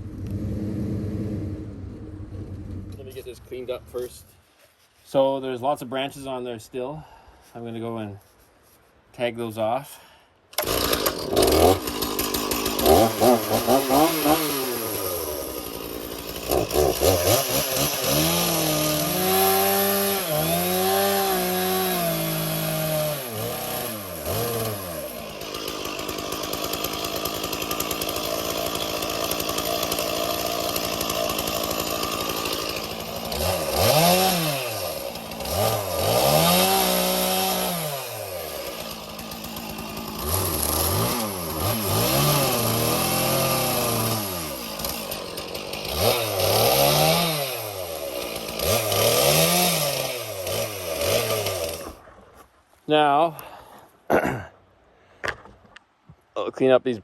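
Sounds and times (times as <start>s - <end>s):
chainsaw cutting branches: 10.5s - 52.1s.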